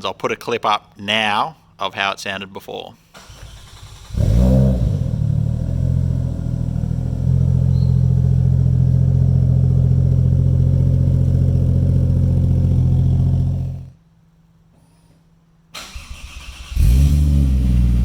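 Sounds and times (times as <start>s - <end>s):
car engine idling: 3.3s - 14.0s, 16.8s - 18.0s.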